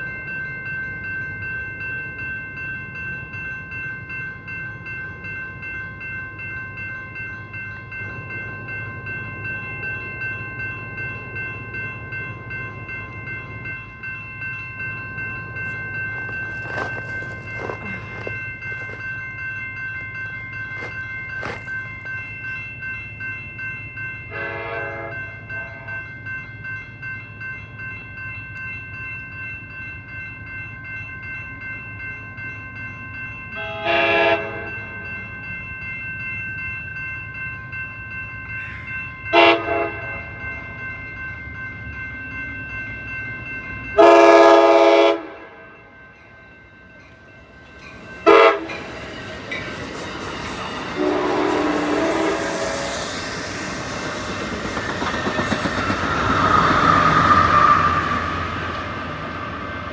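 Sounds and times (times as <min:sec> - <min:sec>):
train wheels rushing: 0:15.6 - 0:19.1, 0:20.6 - 0:22.6, 0:47.7 - 0:59.9
train horn blasts: 0:24.3 - 0:25.9, 0:33.6 - 0:34.7, 0:39.3 - 0:40.3, 0:44.0 - 0:45.7, 0:48.2 - 0:48.9, 0:50.9 - 0:53.1.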